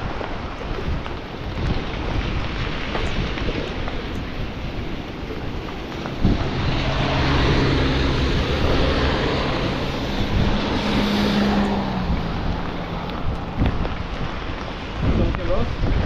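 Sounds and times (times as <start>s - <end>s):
rain: 0.0s - 16.0s
rushing wind: 0.0s - 16.0s
vehicle engine hum: 2.7s - 15.4s.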